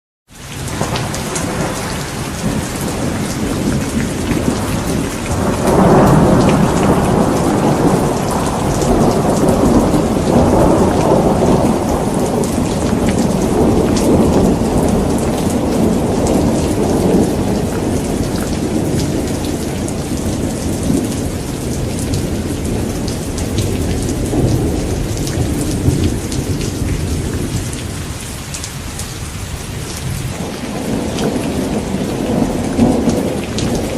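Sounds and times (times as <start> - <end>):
heavy rain pattering: 0.3 - 33.9
thunder rumbling: 0.4 - 33.9.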